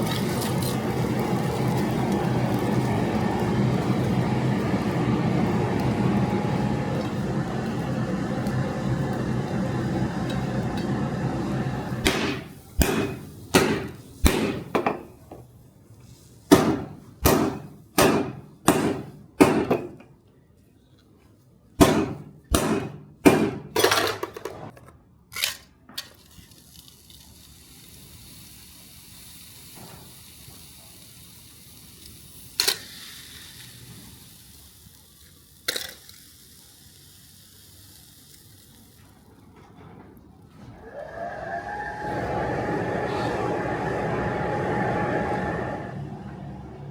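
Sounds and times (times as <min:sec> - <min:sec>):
steady rumble: 0:00.0 - 0:14.7, 0:41.6 - 0:46.9.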